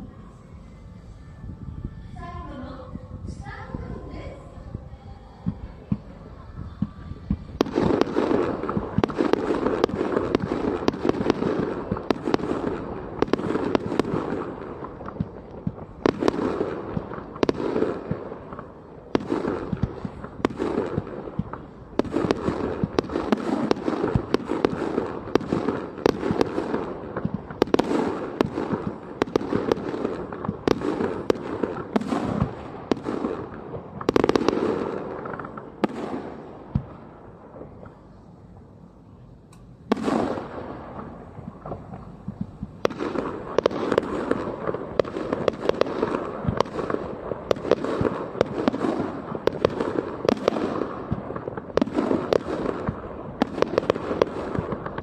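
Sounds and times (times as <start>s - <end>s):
firework cracks and crackling: 5.4s - 38.2s, 39.8s - 55.0s
firework booms: 6.7s - 38.7s, 39.8s - 55.0s.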